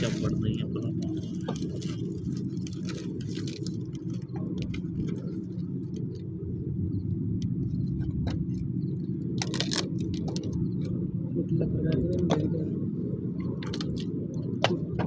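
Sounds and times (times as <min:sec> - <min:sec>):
steady low rumble: 0:00.0 - 0:15.0
firewood crackling and popping: 0:01.0 - 0:06.3, 0:08.5 - 0:11.0.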